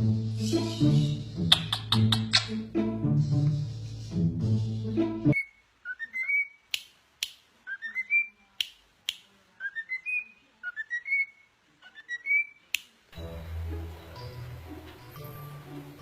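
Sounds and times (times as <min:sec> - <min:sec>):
music: 0:00.0 - 0:05.4, 0:13.1 - 0:16.0
parrot whistling: 0:05.3 - 0:06.6, 0:07.7 - 0:08.4.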